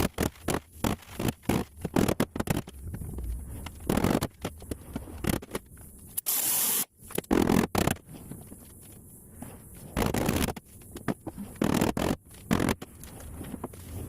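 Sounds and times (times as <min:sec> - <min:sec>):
burst of hiss: 0:06.2 - 0:07.0.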